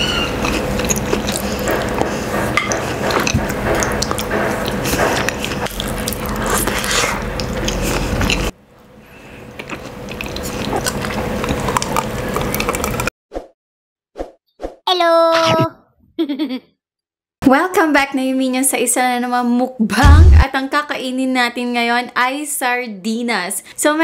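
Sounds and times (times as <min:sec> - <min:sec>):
chewing with wet clicks and smacks: 0:00.3 - 0:02.1, 0:02.7 - 0:08.5, 0:09.5 - 0:13.1.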